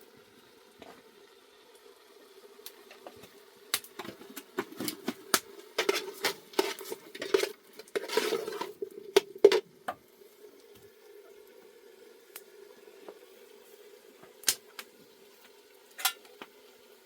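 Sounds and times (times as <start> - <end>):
dishes and utensils clinking: 5.8 - 9.6, 16.0 - 16.3
short scrape: 8.0 - 8.7.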